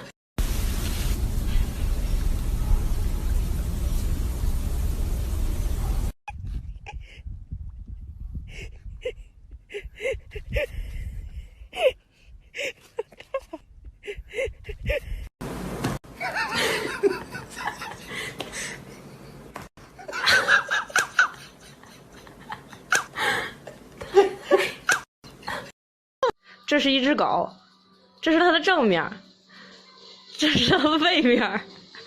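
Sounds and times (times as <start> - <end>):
people laughing: 16.2 - 18.7, 20.0 - 25.7.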